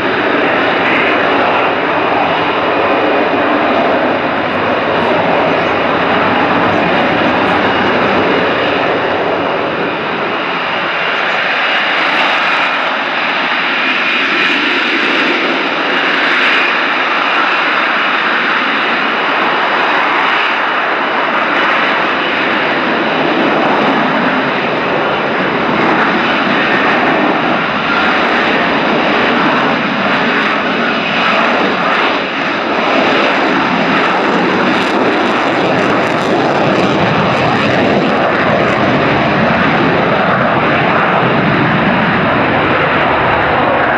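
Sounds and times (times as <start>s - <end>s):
jet engine rushing noise: 0.0s - 43.9s.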